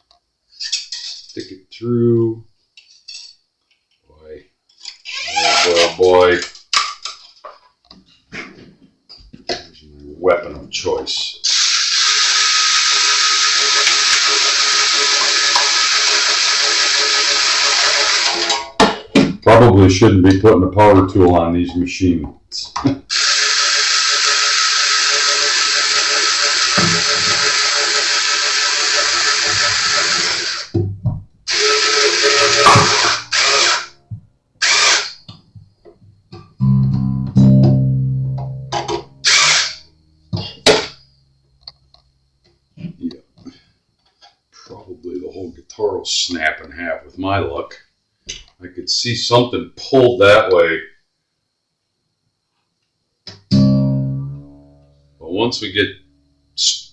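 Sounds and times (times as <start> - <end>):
power drill running: 11.4 - 18.6, 23.1 - 30.8, 31.5 - 33.9, 34.6 - 35.2, 39.2 - 39.8
guitar string plucked: 36.6 - 41.0, 53.3 - 56.4.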